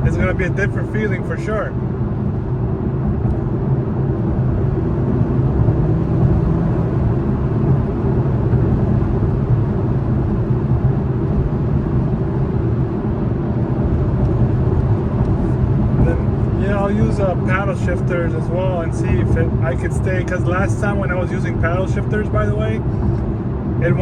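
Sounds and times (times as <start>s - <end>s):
car engine hum: 0.0s - 24.0s
tyre and road noise: 0.0s - 24.0s.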